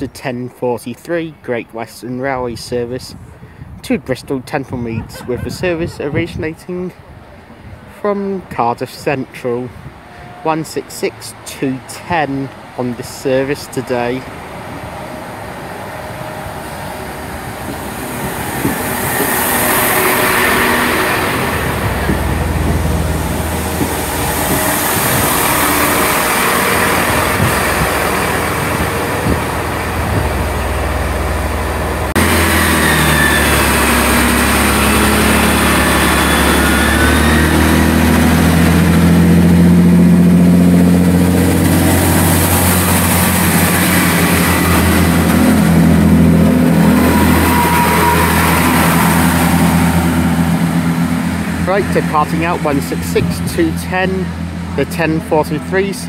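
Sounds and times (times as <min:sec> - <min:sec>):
diesel train engines running: 0:00.0 - 0:56.0.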